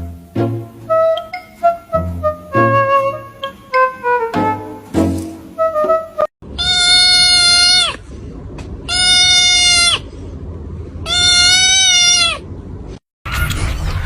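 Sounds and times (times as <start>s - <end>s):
animal high-pitched call: 6.6s - 8.0s, 11.1s - 12.4s.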